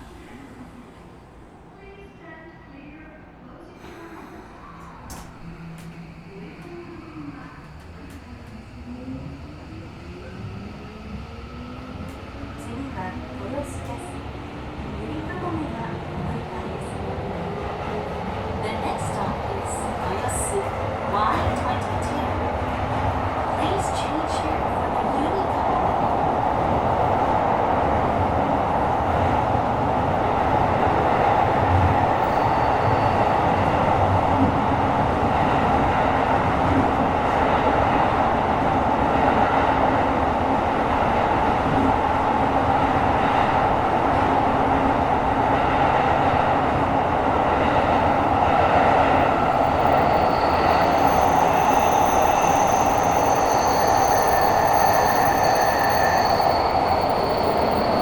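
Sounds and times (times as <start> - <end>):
subway car rumble: 0.0 - 58.0
high-pitched wheel squeal: 49.6 - 58.0.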